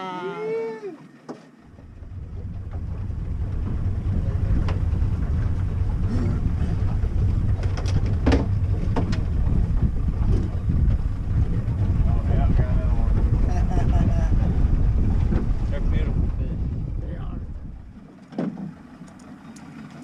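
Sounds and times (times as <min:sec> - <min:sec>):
boat motor rumble: 0:00.0 - 0:20.0
wind buffeting microphone: 0:01.7 - 0:18.1.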